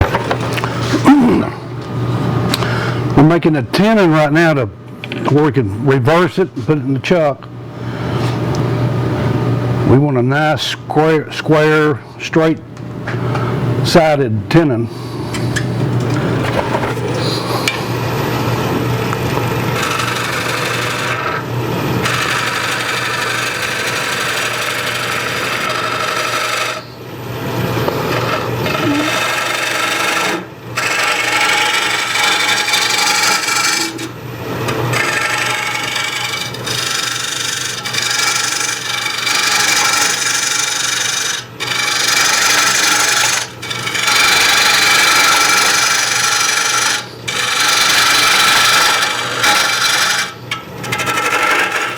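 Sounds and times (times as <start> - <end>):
lathe humming: 14.9 - 51.9
turning tool scraping wood: 19.6 - 21.4, 22.0 - 26.8, 28.0 - 51.9.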